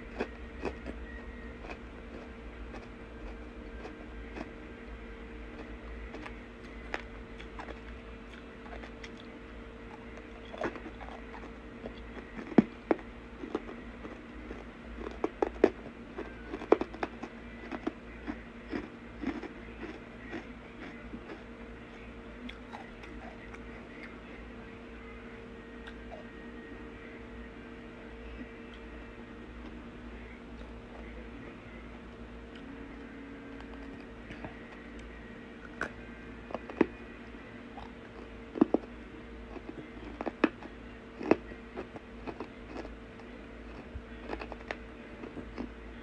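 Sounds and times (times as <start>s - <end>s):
person chewing and crunching: 0.0s - 4.6s, 5.4s - 9.3s, 9.9s - 21.5s, 22.5s - 24.2s, 37.7s - 45.8s
faint steady hum: 0.0s - 46.0s.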